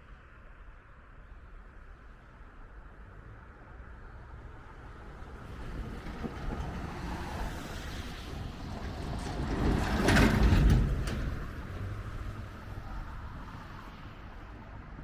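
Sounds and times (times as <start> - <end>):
vehicle passing by: 3.7 - 15.0.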